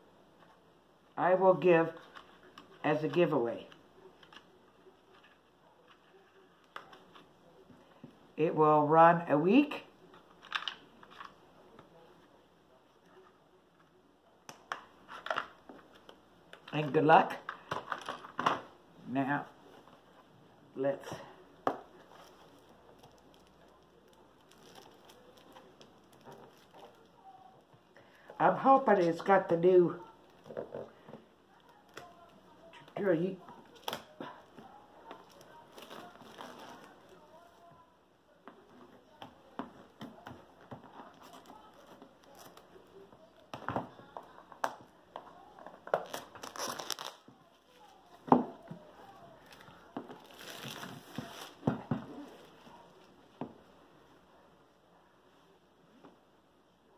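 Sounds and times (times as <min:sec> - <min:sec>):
packaging crinkling: 0:21.9 - 0:27.2, 0:45.6 - 0:48.2
plastic packaging crinkling: 0:21.9 - 0:27.6, 0:31.5 - 0:37.7, 0:45.2 - 0:48.2, 0:48.9 - 0:52.9.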